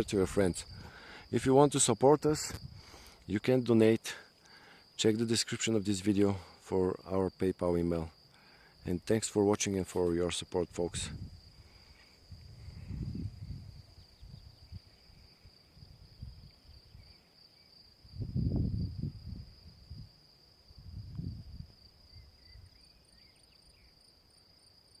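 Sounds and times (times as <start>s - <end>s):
insects trilling: 0.0s - 25.0s
wind buffeting microphone: 2.4s - 2.9s, 10.9s - 11.6s, 12.3s - 14.9s, 15.8s - 17.1s, 18.0s - 20.2s, 20.8s - 21.7s.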